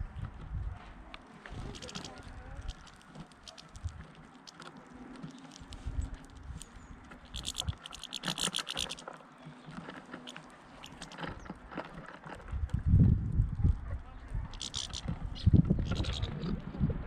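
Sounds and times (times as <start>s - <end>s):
beaks clicking husking seed: 1.5s - 12.8s, 14.4s - 16.7s
high rattling bird call: 6.5s - 11.9s, 14.5s - 16.6s.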